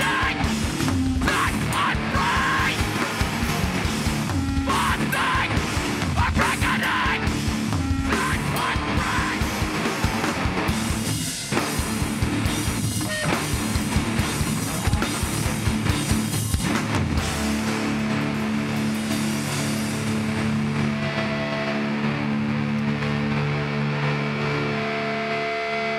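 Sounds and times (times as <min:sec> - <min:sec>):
pounding drums: 0:00.0 - 0:20.7
distorted electric guitar: 0:00.0 - 0:25.9
live heavy band playing: 0:00.0 - 0:25.9.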